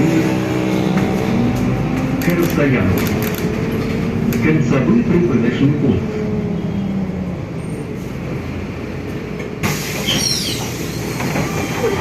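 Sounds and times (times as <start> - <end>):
bus engine and road rumble: 0.0 - 12.0
compressed air hiss: 9.6 - 11.1
brief falling squeals: 10.0 - 12.0.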